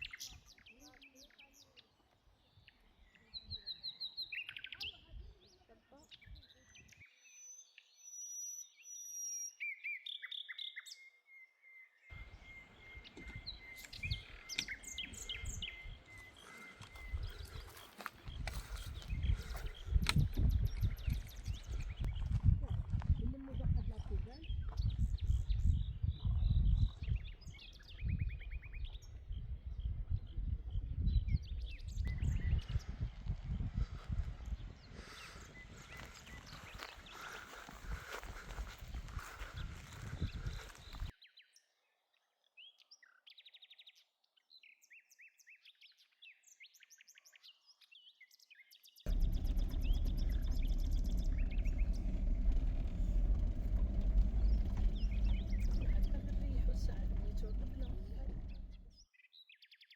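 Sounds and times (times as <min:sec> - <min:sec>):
small birds chirping: 0:00.0 - 0:59.9
low rumble: 0:12.2 - 0:37.0, 0:49.1 - 0:59.0.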